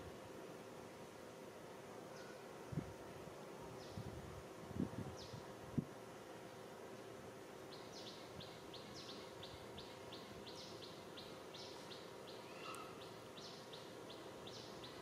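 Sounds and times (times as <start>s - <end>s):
bird chirping: 7.7s - 15.0s
brief bird call: 12.3s - 13.2s.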